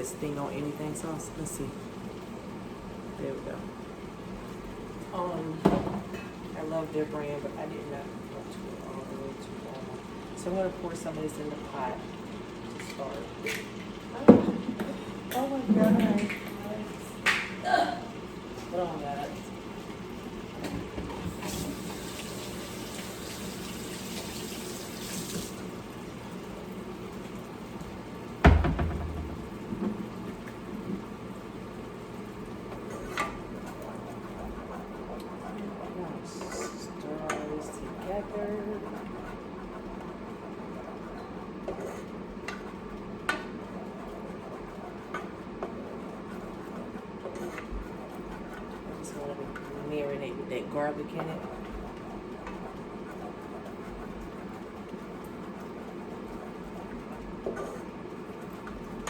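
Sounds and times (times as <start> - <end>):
water running in a stream: 21.3 - 25.9
spoon stirring sauce in a pot: 32.4 - 49.8.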